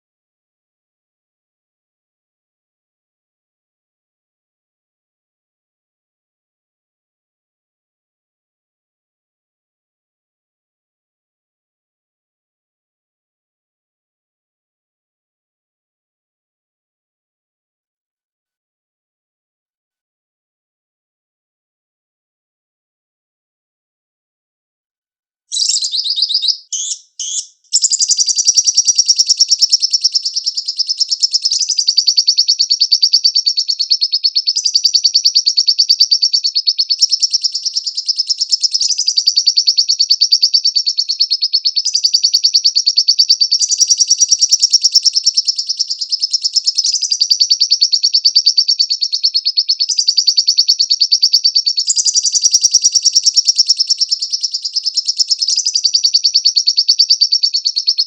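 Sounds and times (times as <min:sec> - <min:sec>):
bird chirping and trilling: 0:25.5 - 0:58.0.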